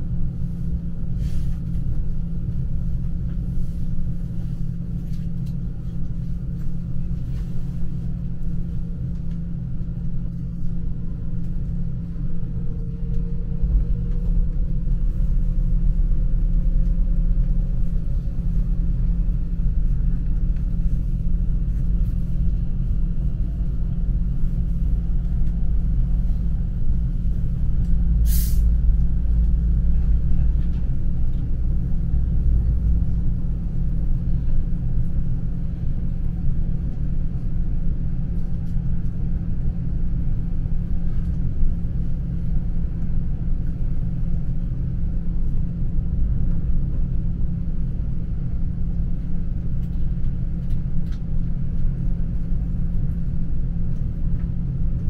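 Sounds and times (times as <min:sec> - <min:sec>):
electric train rumbling: 0:00.0 - 0:55.0
sharp hiss: 0:28.3 - 0:28.6.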